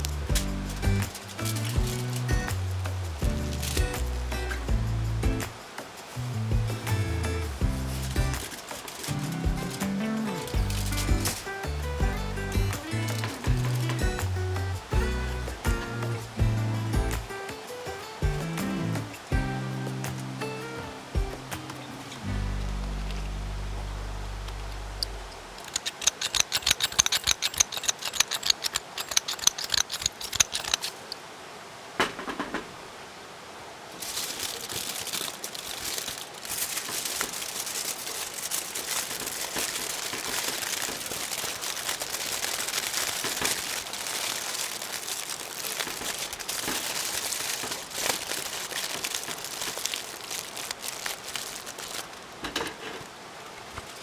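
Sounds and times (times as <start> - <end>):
aluminium foil crinkling: 0.0 - 4.7, 5.5 - 16.0, 25.0 - 31.2, 34.0 - 54.0.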